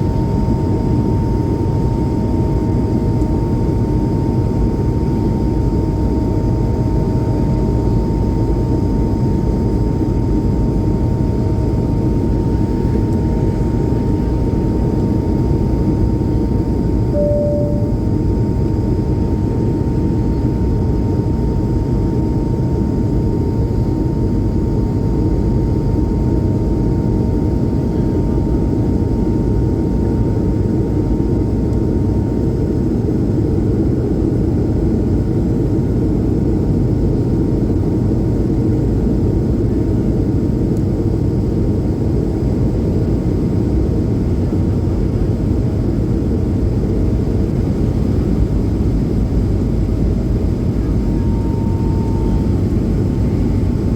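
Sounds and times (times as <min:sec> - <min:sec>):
faint steady whine: 0:00.0 - 0:23.1, 0:44.7 - 0:53.9
jet engine cabin roar: 0:12.0 - 0:19.6, 0:34.9 - 0:53.9.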